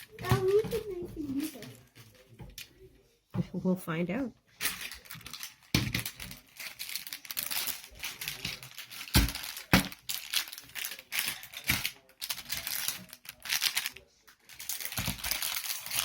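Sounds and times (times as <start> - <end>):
plastic wrapper crinkling and tearing: 0.0 - 2.8, 4.6 - 16.0.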